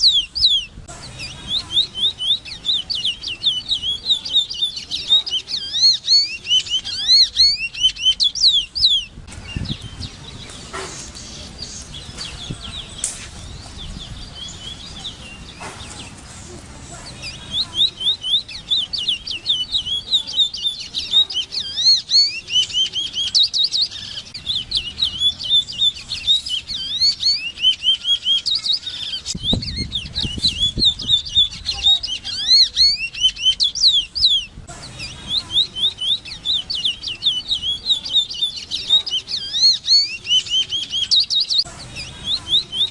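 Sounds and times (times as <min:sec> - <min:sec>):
bird singing whistled notes: 0:00.0 - 0:16.1, 0:17.0 - 0:42.9.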